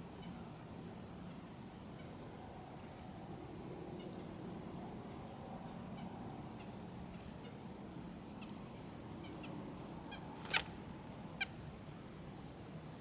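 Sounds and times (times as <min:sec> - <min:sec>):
loud bird calls: 0:09.2 - 0:10.8.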